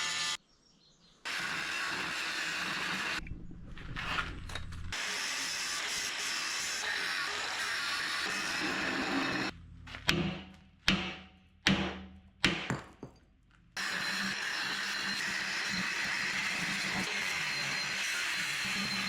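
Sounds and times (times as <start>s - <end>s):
hammer hitting steel: 10.1s - 13.2s.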